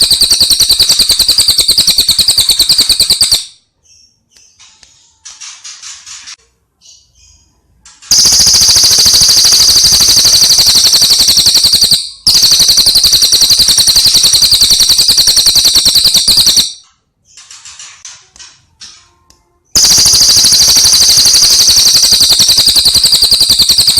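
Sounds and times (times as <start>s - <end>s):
bird rattling trills: 8.1s - 16.6s, 19.8s - 23.9s.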